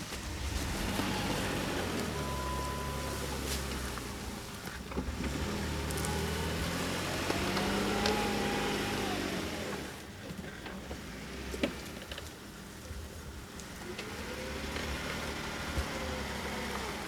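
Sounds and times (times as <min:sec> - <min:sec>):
engine revving: 0:00.0 - 0:10.1, 0:13.9 - 0:17.0.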